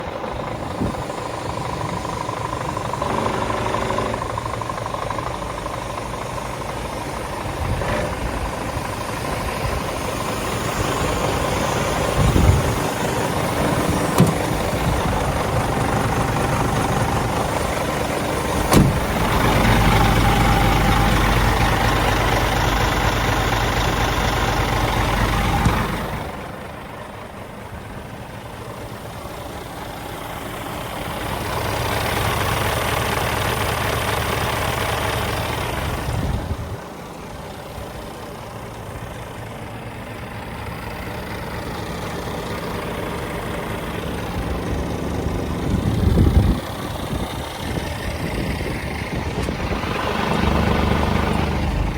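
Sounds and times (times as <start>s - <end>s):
diesel truck engine idling: 0.0s - 51.9s
sharp knocks: 18.6s - 19.3s.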